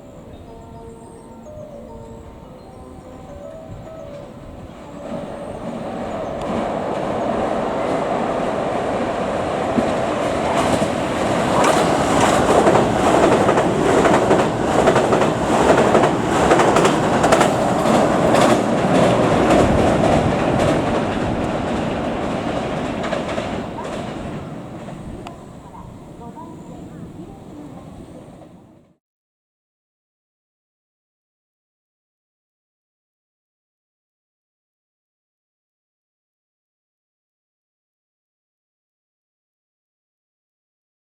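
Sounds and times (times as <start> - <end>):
train wheels clattering over rails: 3.5 - 26.2.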